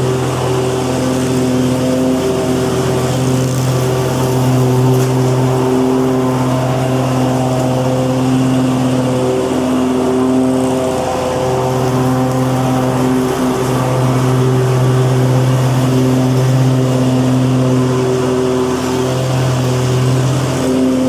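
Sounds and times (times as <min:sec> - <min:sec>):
lawn mower engine running: 0:00.0 - 0:21.0.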